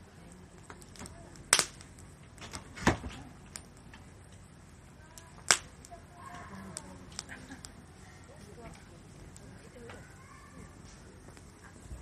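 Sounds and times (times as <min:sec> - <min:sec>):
wood fire crackling: 0:00.0 - 0:12.0
sharp fire pops: 0:00.3 - 0:04.5, 0:05.1 - 0:06.0, 0:06.7 - 0:07.8.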